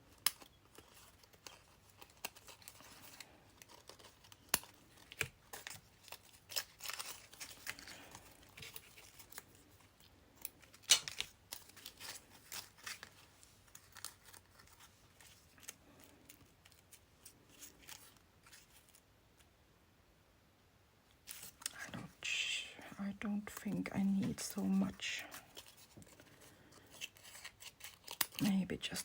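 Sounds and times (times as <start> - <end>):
scissors snipping paper: 0.2 - 9.5, 26.8 - 28.5
paper rustling: 0.7 - 19.0, 23.6 - 29.0.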